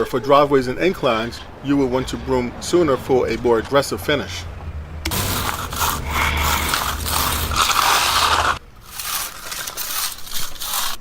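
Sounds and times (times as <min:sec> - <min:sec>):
broom scraping concrete: 0:05.1 - 0:11.0.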